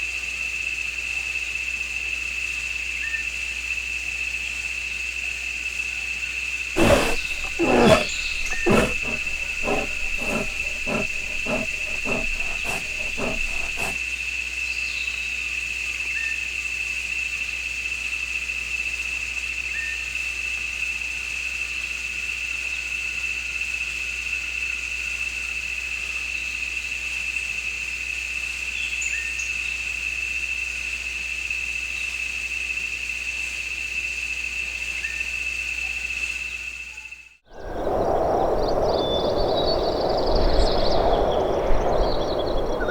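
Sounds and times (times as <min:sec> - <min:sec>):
big cat grunting: 0:06.8 - 0:14.0.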